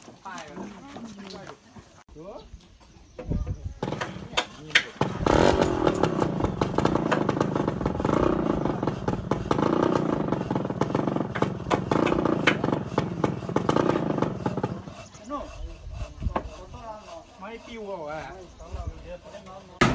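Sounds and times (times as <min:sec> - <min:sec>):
sharp knocks and clattering: 0:03.2 - 0:08.0, 0:09.1 - 0:14.8
small engine running: 0:05.0 - 0:19.2.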